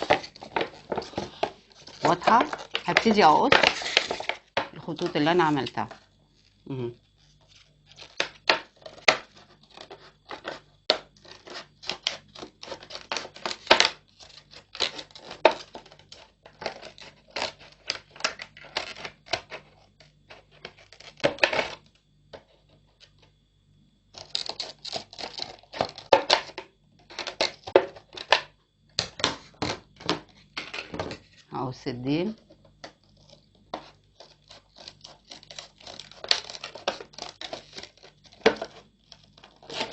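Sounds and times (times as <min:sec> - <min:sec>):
scissors cutting plastic bottle: 0:00.0 - 0:04.4, 0:34.2 - 0:39.9.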